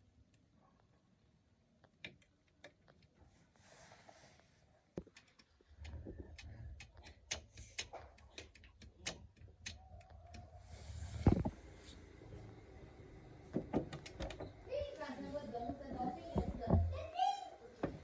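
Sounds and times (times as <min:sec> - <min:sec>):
tools clicking and knocking: 0:05.0 - 0:10.5.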